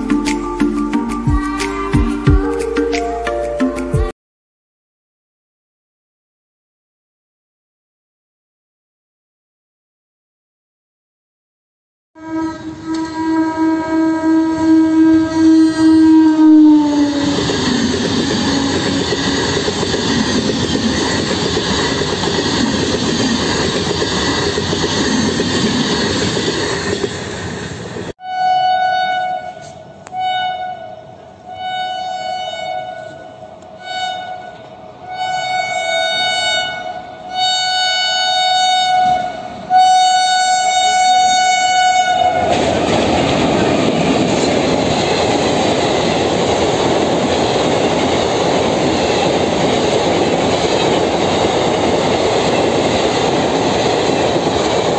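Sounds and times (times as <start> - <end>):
short train horn blasts: 12.2 - 17.4, 28.2 - 42.5
train horn dropping in pitch: 12.2 - 17.4, 28.2 - 42.5
rush of passing train: 12.2 - 54.9
loud rush of express train: 12.3 - 28.2, 29.2 - 54.9.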